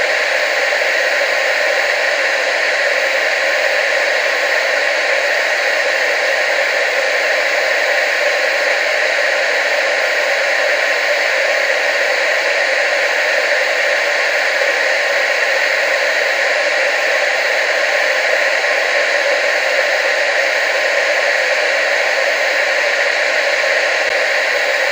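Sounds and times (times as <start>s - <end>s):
tv static hiss: 0.0s - 24.9s.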